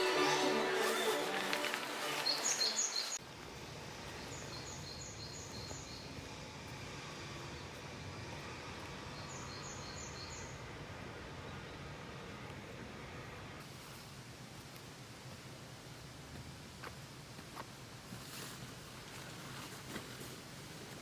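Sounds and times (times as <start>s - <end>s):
background music: 0.0s - 3.1s
river rushing: 0.0s - 3.2s.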